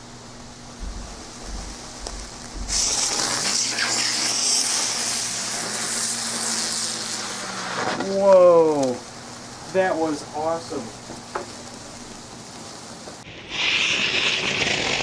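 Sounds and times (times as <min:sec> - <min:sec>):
electrical hum: 0:00.0 - 0:13.5
fireworks hissing rush: 0:00.0 - 0:15.0
dull low thumps: 0:00.6 - 0:02.9.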